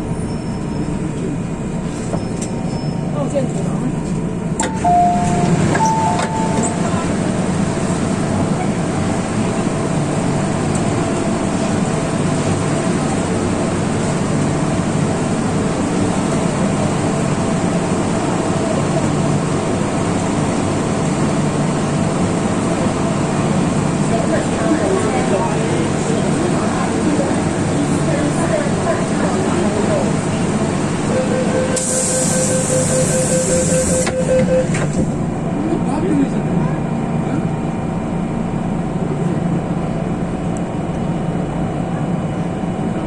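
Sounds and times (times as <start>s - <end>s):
station ambience: 0.0s - 43.0s
train running hum: 0.0s - 43.0s
short high tones: 4.6s - 7.0s.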